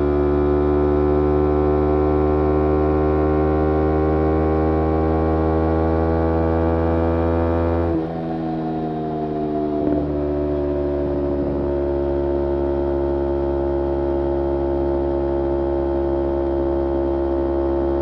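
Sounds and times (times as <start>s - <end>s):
motorcycle engine running: 6.0s - 18.0s.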